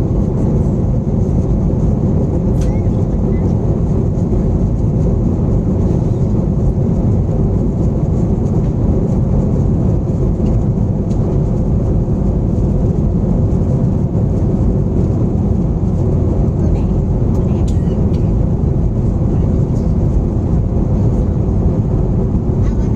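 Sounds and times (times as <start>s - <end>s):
airliner engine rumble in cabin: 0.0s - 22.9s.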